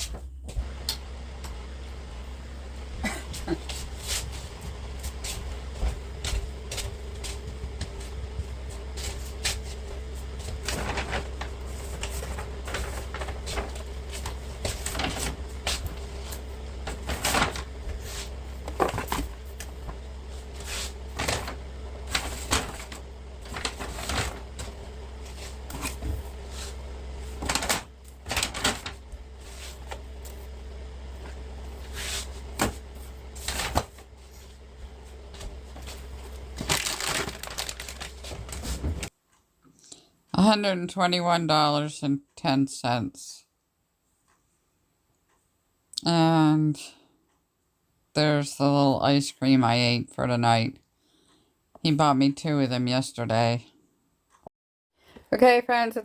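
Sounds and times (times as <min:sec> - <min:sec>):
low hum: 0:00.0 - 0:39.1
household items handled and set down: 0:10.3 - 0:30.4.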